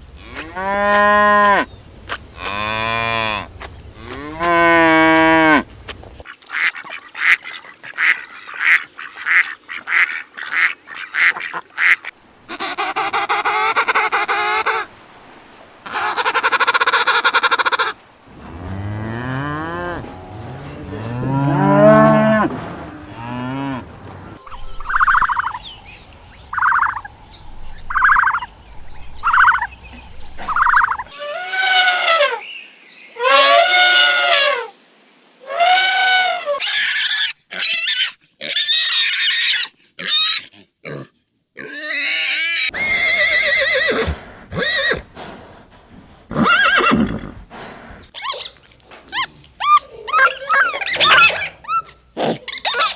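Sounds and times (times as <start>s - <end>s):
cow mooing: 18.6s - 23.9s
farm animal calls: 24.4s - 25.7s, 26.5s - 27.1s, 29.2s - 29.7s, 30.4s - 32.4s, 46.3s - 52.9s.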